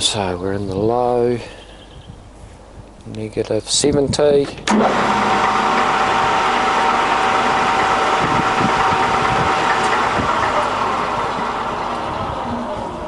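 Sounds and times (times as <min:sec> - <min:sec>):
lathe gear and motor running: 0:04.7 - 0:13.0.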